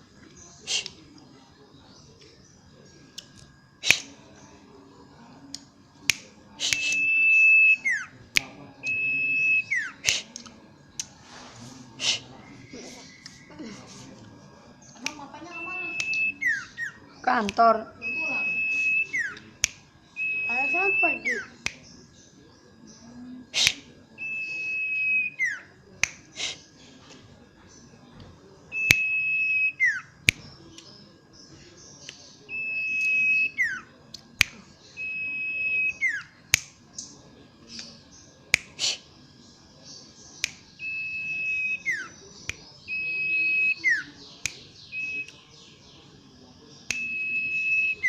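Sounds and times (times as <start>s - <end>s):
bird whistling: 6.6s - 10.1s, 15.4s - 19.5s, 20.2s - 21.6s, 23.6s - 25.7s, 28.7s - 30.1s, 32.4s - 33.9s, 34.9s - 36.4s, 40.4s - 45.4s, 46.9s - 48.0s
sharp clicks: 46.9s - 47.2s.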